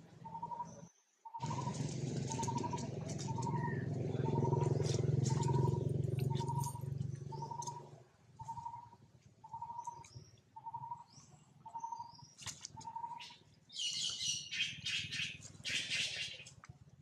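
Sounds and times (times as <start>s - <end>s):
monkeys rustling dry leaves: 1.4s - 4.0s.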